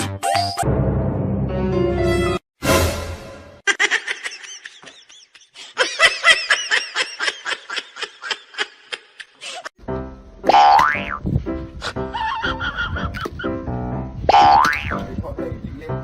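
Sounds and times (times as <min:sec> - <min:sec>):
person laughing in high bursts: 0:03.6 - 0:09.7, 0:12.1 - 0:13.4.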